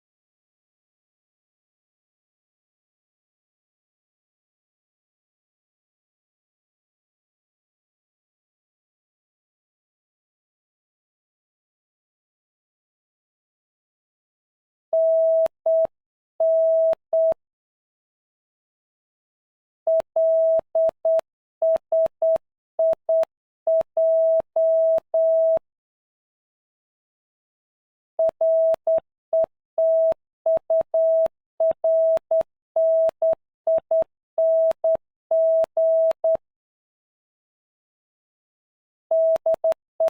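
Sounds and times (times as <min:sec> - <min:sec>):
morse code beeps: 0:15.0 - 0:17.4, 0:19.9 - 0:25.6, 0:28.2 - 0:36.4, 0:39.1 - 0:39.8.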